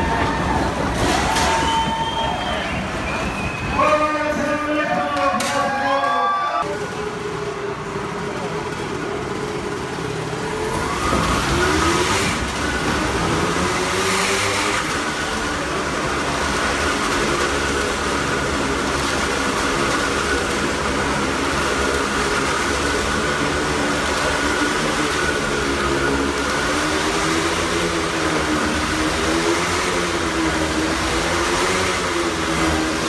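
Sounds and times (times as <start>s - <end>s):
motorcycle engine revving: 6.8s - 33.0s.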